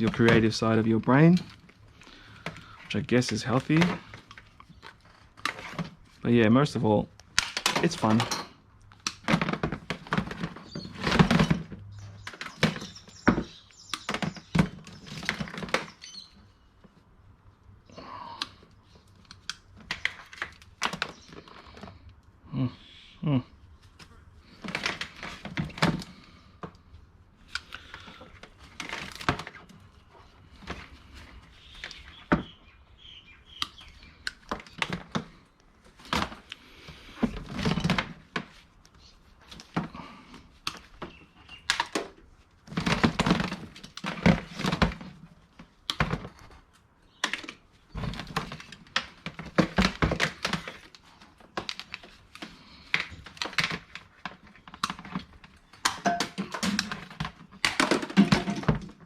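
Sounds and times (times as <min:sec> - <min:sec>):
scrap dropped into buckets: 0:55.0 - 0:59.0.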